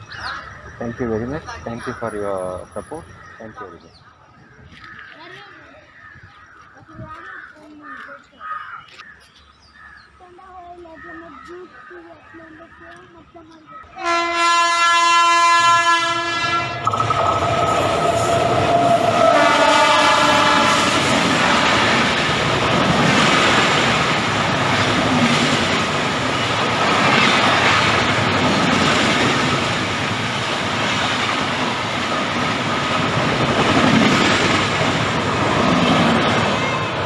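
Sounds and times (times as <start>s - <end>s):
train rumbling: 0.0s - 5.0s, 10.0s - 37.0s
train horn: 14.0s - 16.9s, 18.1s - 22.1s.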